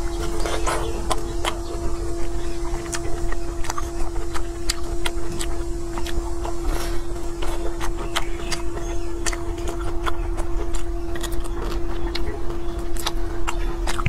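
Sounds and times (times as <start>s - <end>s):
chewing and sucking food: 0.0s - 14.0s
steady hum: 0.0s - 14.0s
wet mouth clicks: 0.5s - 14.0s.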